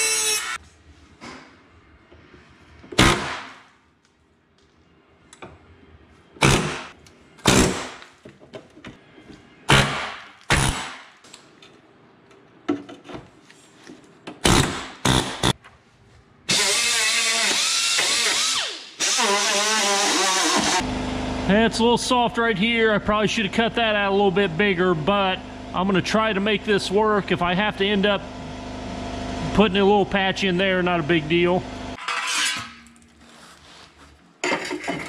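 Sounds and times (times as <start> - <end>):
power tool cutting sheet metal: 0.0 - 0.6, 16.5 - 20.9.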